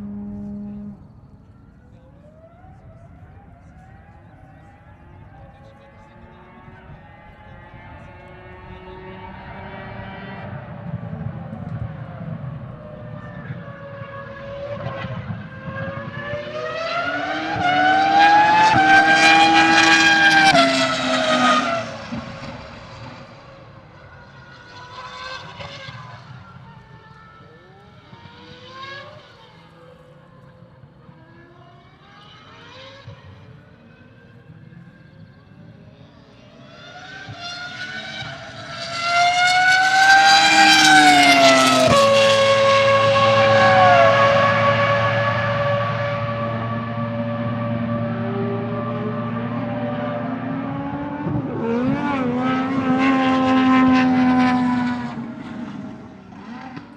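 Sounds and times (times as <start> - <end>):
racing car engine passing: 2.4 - 27.0, 36.1 - 56.9.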